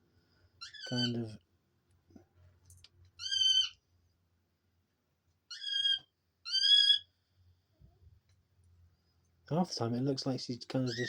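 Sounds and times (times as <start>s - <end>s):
dove squeaky calls: 0.6s - 1.3s, 3.2s - 3.8s, 5.5s - 7.2s.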